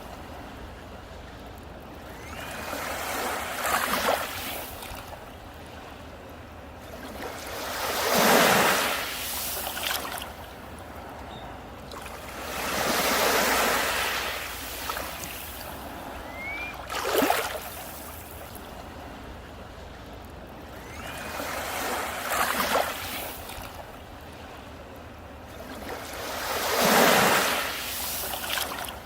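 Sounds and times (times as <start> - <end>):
sea surf breaking on beach: 2.2 - 5.1, 6.9 - 11.2, 11.9 - 18.6, 20.8 - 24.0, 25.7 - 29.0.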